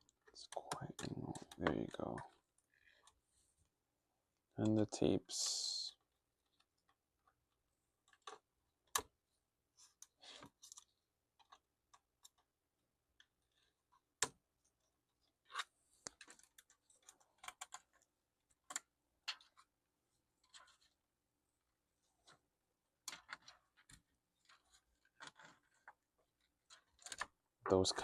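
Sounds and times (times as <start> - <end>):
plastic laptop parts clicking: 8.0 - 9.2, 10.0 - 12.5, 13.1 - 14.4, 15.2 - 19.7, 23.0 - 27.4
plastic parts scraping: 15.1 - 19.7, 20.3 - 21.0, 23.0 - 28.0.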